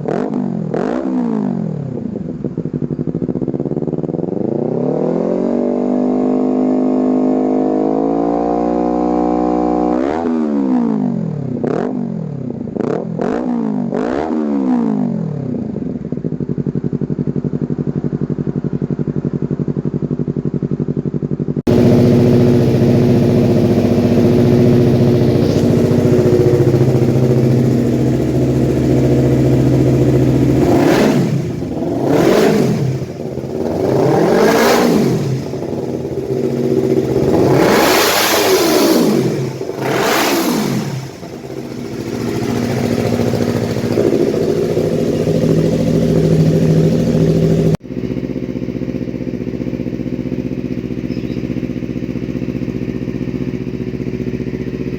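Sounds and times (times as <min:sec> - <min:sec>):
motorcycle engine idling and revving: 0:00.0 - 0:54.9.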